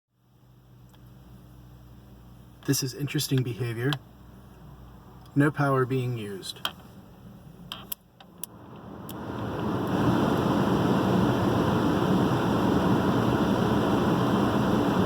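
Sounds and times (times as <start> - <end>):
blower fan rush of air: 6.4 - 15.0.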